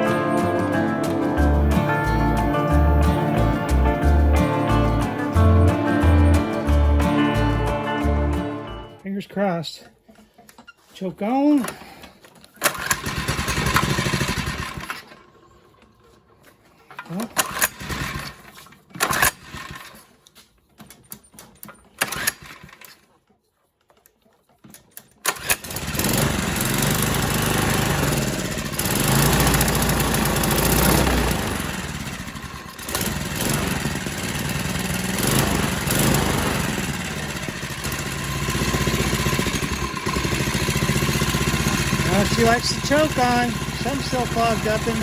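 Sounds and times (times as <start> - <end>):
small engine sputtering and running: 11.6 - 16.4, 17.0 - 20.2, 21.6 - 23.0, 25.2 - 45.0.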